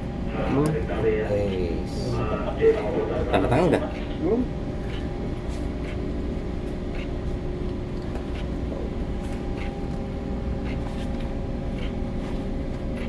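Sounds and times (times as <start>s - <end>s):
ship machinery drone: 0.0s - 13.0s.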